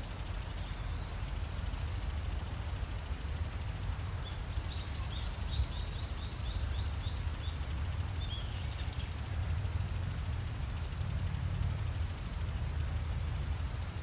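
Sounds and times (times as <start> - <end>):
small bird chirping: 4.2 - 9.2.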